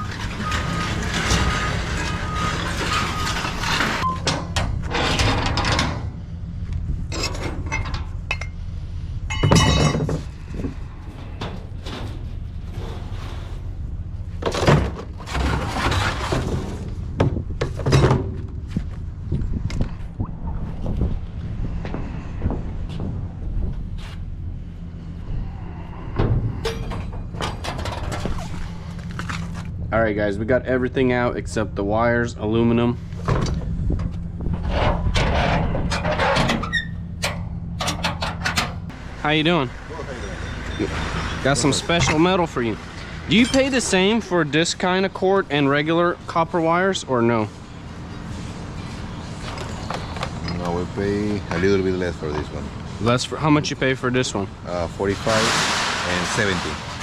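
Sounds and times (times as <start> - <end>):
scrap rustling and scraping: 0.0 - 4.1, 10.0 - 19.0, 33.0 - 36.6, 54.8 - 57.0
scrap metal clanking onto pile: 0.0 - 6.1, 9.3 - 10.3, 54.8 - 57.0
steady low rumble: 4.0 - 40.1
low engine hum: 6.0 - 43.3.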